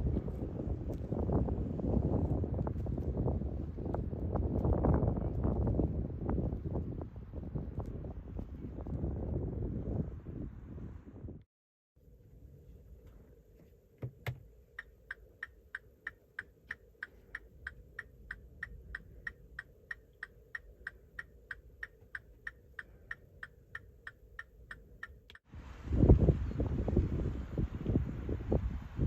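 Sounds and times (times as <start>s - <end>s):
rapid electronic ticking: 14.8s - 25.4s.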